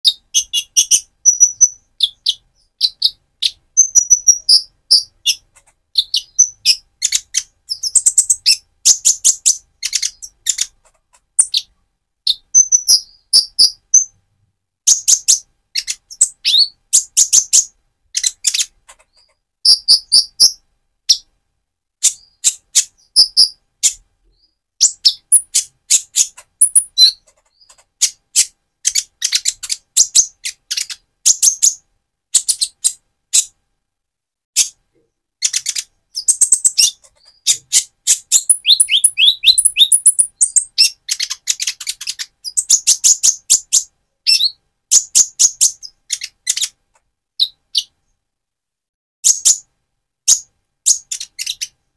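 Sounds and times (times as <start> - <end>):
sunbird singing high chirps: 0.0 - 5.4, 6.0 - 10.7, 19.6 - 21.2, 22.1 - 27.7, 35.4 - 46.7.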